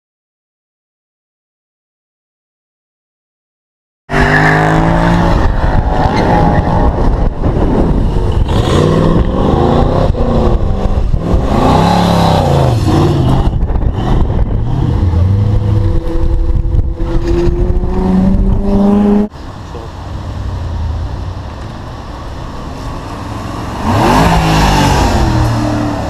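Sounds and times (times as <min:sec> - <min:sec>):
car engines revving: 0:04.1 - 0:26.0.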